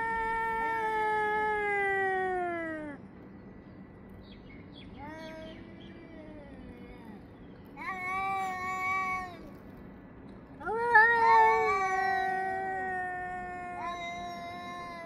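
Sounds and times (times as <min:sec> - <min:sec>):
cats yowling: 0:10.6 - 0:15.0.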